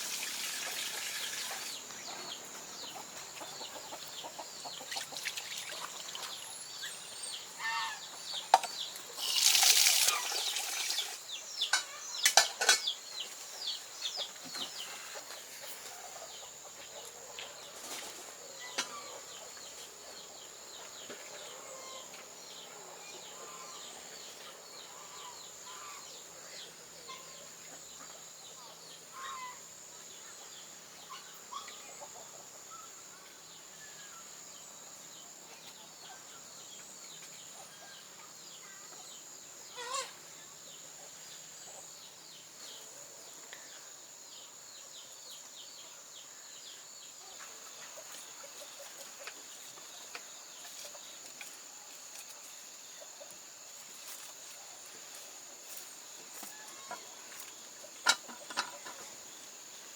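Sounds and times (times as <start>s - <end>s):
chickens clucking and peeping: 0.1s - 6.4s, 7.3s - 9.3s, 11.0s - 33.0s, 35.0s - 59.8s
chicken squawk: 39.8s - 40.2s.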